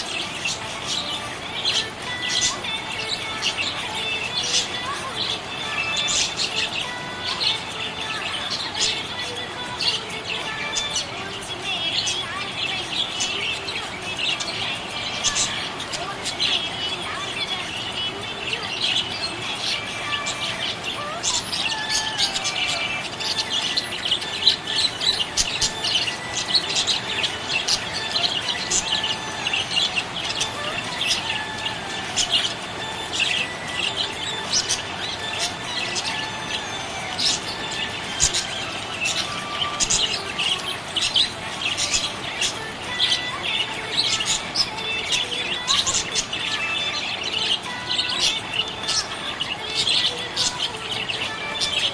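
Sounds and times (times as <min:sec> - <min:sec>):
budgerigars chirping: 0:00.0 - 0:51.9.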